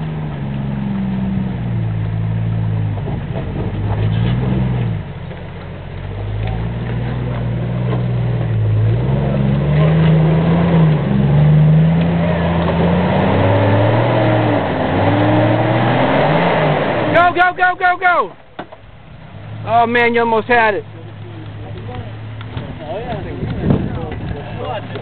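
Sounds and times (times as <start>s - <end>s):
engine revving under load: 0.0s - 17.4s.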